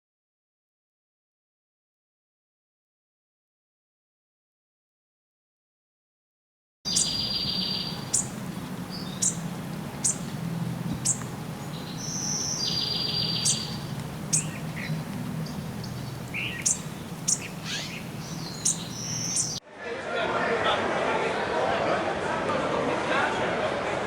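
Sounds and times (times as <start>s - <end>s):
birds chirping: 6.9s - 19.6s
buzzy bird trill: 6.9s - 19.6s
low steady hum: 6.9s - 19.6s.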